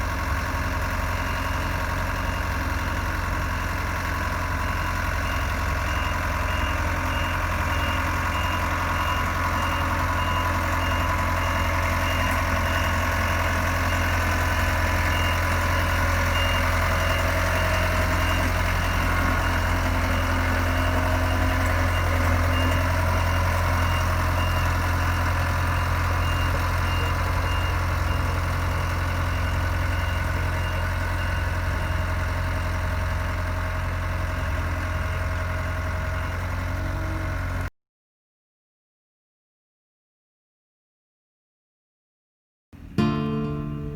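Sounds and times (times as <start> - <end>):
diesel engine humming: 0.0 - 37.7, 42.8 - 43.9
back-up alarm beeping: 5.2 - 32.1.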